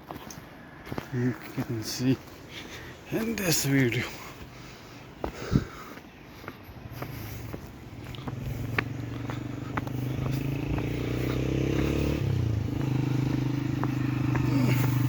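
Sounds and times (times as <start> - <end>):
vehicle engine running: 7.0 - 15.0.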